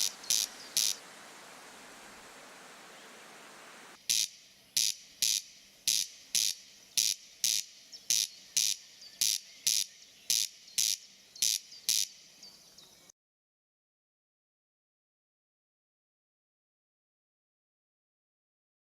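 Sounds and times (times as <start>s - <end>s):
bird harsh rasping call: 0.0s - 1.0s
faint hiss: 0.0s - 13.1s.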